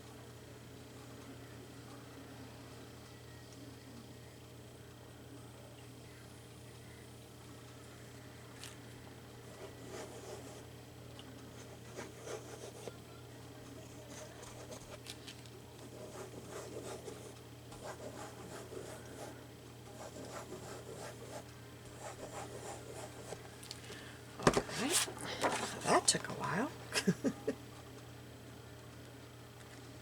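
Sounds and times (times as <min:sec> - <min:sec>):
paper rubbing and scratching: 0:24.4 - 0:26.1.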